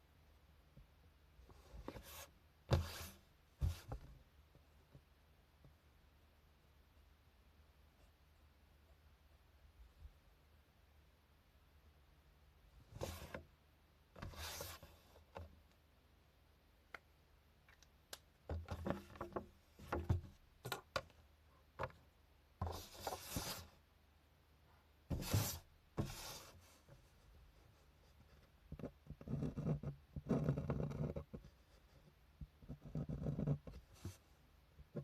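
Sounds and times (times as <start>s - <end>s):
drawing tool scratching paper: 28.1s - 32.0s, 32.6s - 34.1s.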